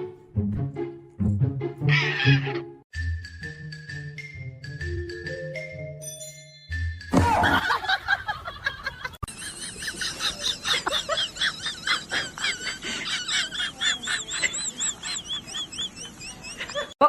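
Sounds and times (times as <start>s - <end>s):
birds calling: 9.0s - 17.0s.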